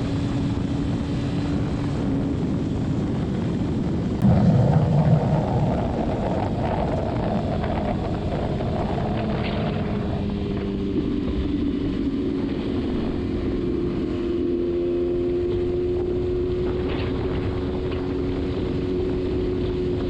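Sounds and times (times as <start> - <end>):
wind rushing past: 0.0 - 12.1
motorcycle engine at speed: 0.0 - 20.0.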